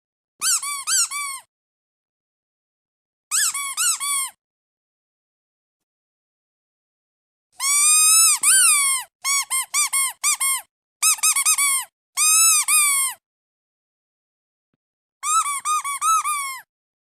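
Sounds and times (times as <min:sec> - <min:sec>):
squeaky duck toy squeaking: 0:00.4 - 0:01.5, 0:03.3 - 0:04.4, 0:07.6 - 0:13.2, 0:15.2 - 0:16.7.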